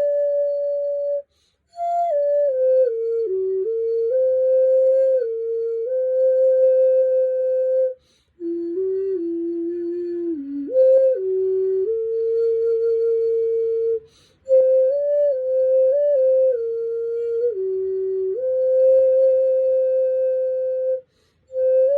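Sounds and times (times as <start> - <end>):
vessel flute melody: 0.0 - 21.9.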